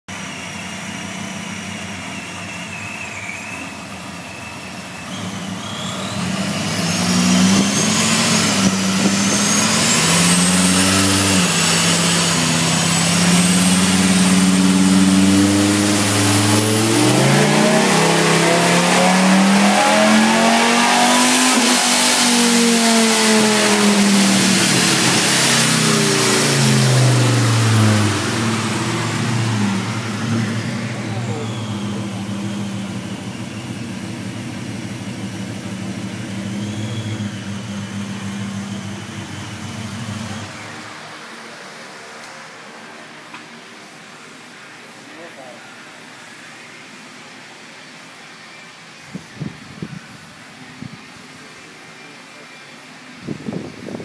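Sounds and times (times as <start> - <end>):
truck engine revving: 0.1 - 43.2
supercharger whine: 0.1 - 54.0.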